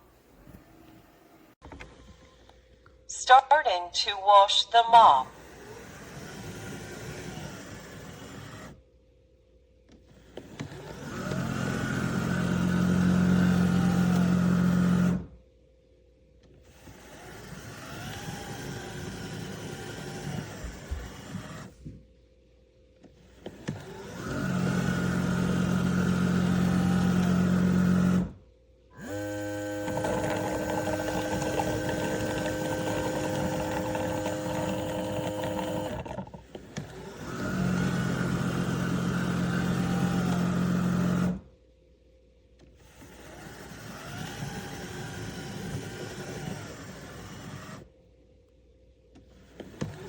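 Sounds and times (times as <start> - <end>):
motors and water pump humming: 10.2 - 15.3, 16.7 - 21.8, 23.3 - 41.5, 42.8 - 47.9.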